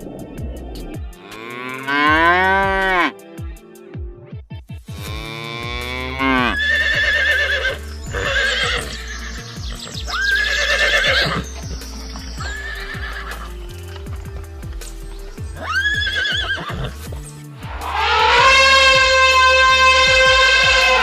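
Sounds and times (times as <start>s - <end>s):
music with low drone: 0.0s - 21.0s
cow mooing: 1.2s - 3.1s, 5.0s - 9.0s, 17.8s - 21.0s
horse neighing: 5.2s - 11.7s, 12.4s - 13.6s, 15.6s - 21.0s.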